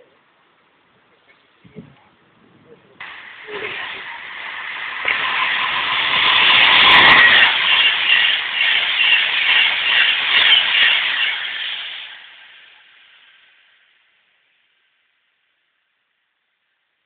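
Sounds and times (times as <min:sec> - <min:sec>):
train rushing past at speed: 0:03.0 - 0:13.8.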